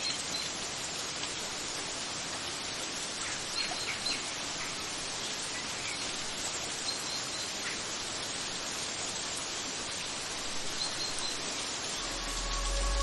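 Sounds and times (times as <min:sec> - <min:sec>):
water rushing: 0:09.4 - 0:13.0.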